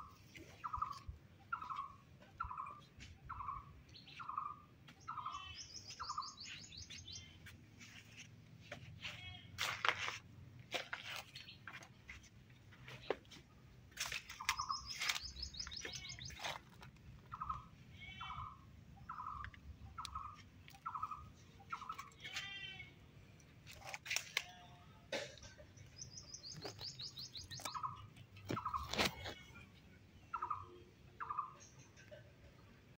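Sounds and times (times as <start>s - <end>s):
birds chirping: 0.0s - 9.1s, 14.0s - 22.7s, 25.6s - 29.6s, 30.2s - 32.2s
high-pitched bird trills: 14.4s - 16.4s.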